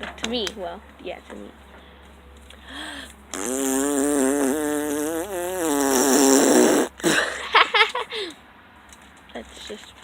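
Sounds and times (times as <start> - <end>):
person making buzzing drone: 3.3 - 7.1.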